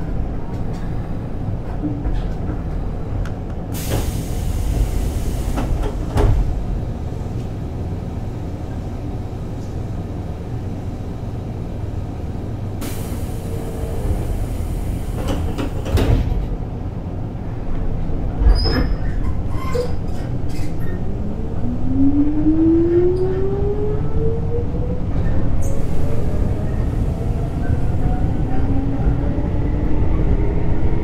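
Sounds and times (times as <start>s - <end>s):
train wheels rumbling: 0.0s - 31.0s
hiss: 3.8s - 6.0s, 12.8s - 15.8s.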